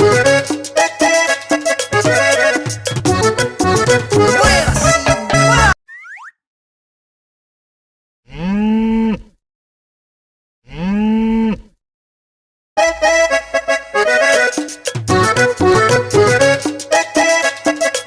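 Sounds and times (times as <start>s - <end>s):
lively music: 0.0s - 5.8s, 12.8s - 18.0s.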